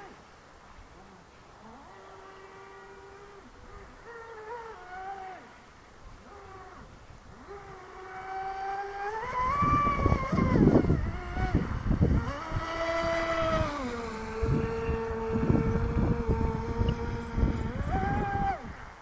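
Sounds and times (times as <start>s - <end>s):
model boat motor whining: 7.4s - 19.0s.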